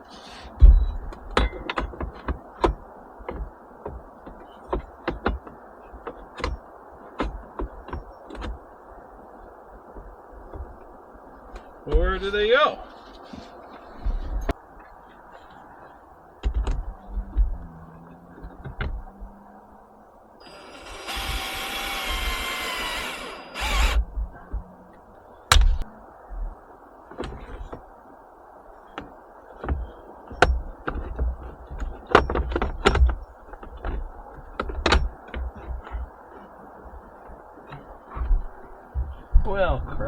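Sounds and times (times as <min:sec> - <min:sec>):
power tool whirring: 0:20.4 - 0:24.0.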